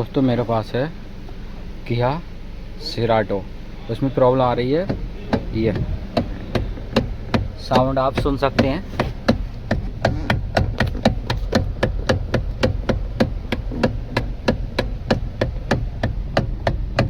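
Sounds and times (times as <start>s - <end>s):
steering column knocking: 3.1s - 17.0s.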